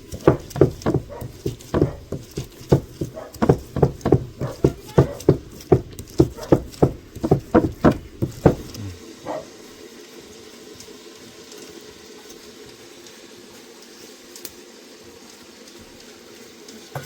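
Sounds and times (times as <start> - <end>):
chopping on a board: 0.0 - 8.9.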